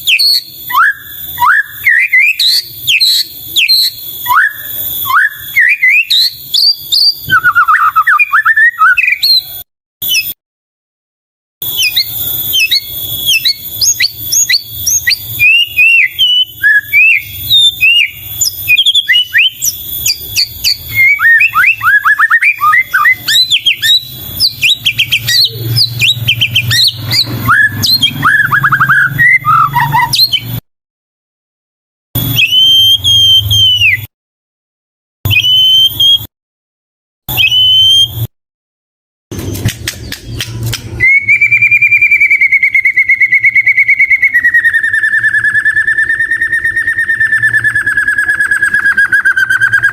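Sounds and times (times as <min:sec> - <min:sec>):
bird singing whistles and trills: 0:00.0 - 0:10.4, 0:11.6 - 0:30.6, 0:32.2 - 0:34.1, 0:35.3 - 0:36.3, 0:37.3 - 0:38.3, 0:40.0 - 0:49.9.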